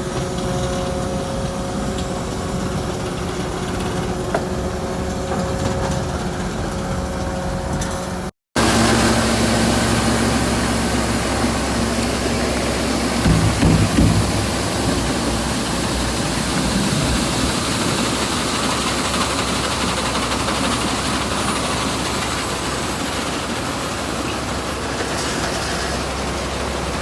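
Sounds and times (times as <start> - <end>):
farm machinery engine running: 0.0 - 27.0
machine with rushing hiss: 7.8 - 27.0.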